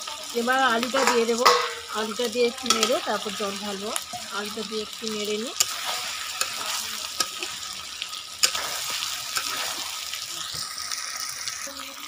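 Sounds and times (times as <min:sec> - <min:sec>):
curry sizzling in a pot: 0:00.0 - 0:12.0
spoon knocking against pot: 0:01.0 - 0:01.9.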